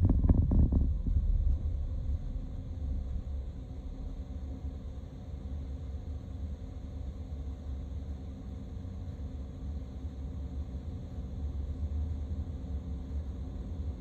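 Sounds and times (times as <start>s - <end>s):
vehicle rumble with road noise: 0.0s - 5.0s.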